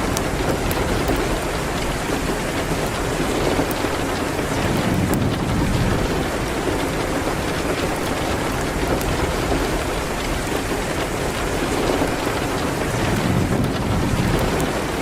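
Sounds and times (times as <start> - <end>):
rain hitting a window: 0.0 - 15.0.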